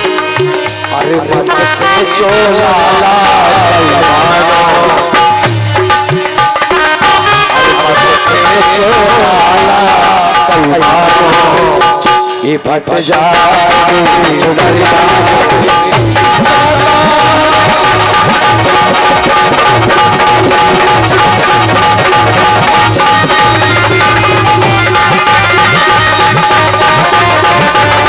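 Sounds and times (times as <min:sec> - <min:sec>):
hand drum rhythm: 0:00.0 - 0:28.0
sustained melody instrument: 0:03.8 - 0:09.9, 0:14.7 - 0:28.0.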